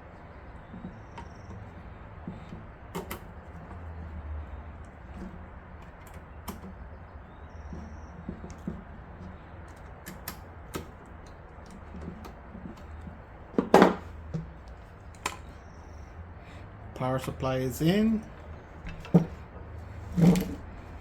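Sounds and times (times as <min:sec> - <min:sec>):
clicks and taps in metal case: 0:02.3 - 0:03.8.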